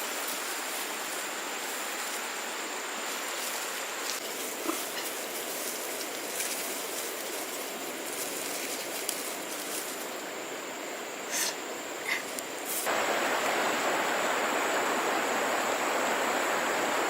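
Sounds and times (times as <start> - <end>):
steady rushing noise: 11.8 - 17.0.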